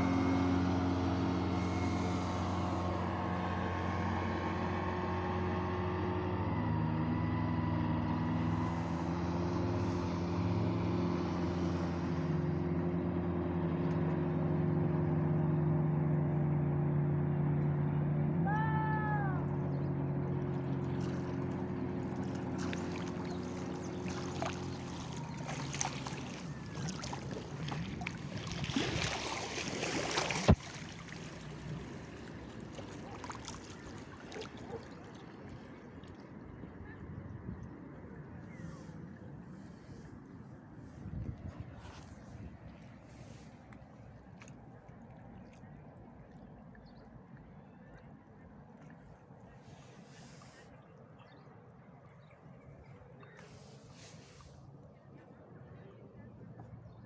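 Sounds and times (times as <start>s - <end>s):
light splashing: 0.0s - 4.2s, 19.4s - 37.0s
motor humming: 0.0s - 13.1s, 19.3s - 35.3s.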